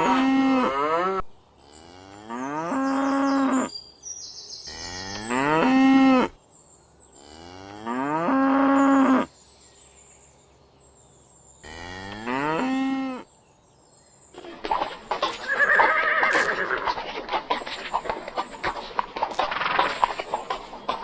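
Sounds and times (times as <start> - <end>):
cow mooing: 0.0 - 3.7, 11.6 - 13.2
clattering animal sound: 14.4 - 21.0.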